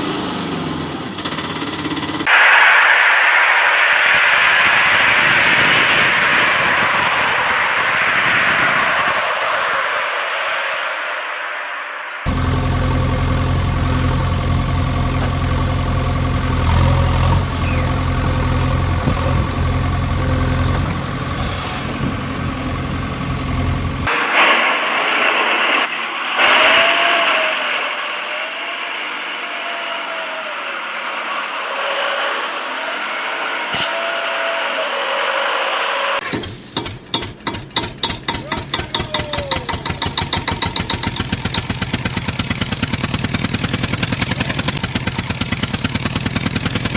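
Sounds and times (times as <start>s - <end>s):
hissy noise with pitch glides: 2.3s - 12.3s, 20.2s - 36.2s
fast even pulsing: 12.3s - 24.1s
engine-like hum: 12.3s - 24.2s, 39.4s - 46.9s.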